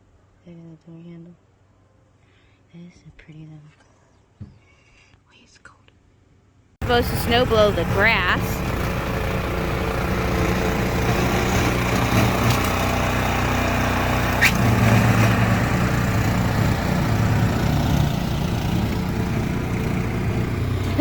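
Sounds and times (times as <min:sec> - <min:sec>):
snowblower engine running: 0:06.8 - 0:21.0
short high squeak: 0:14.3 - 0:14.7.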